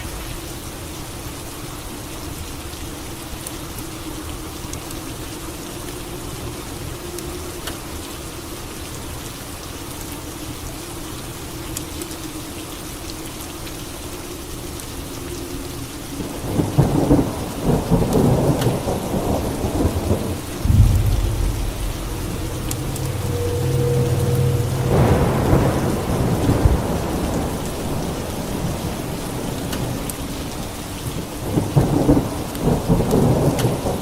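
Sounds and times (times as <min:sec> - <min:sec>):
steady rain: 0:00.0 - 0:34.0
rolling rumble of thunder: 0:16.5 - 0:29.5
crackling thunderclap: 0:16.5 - 0:29.9.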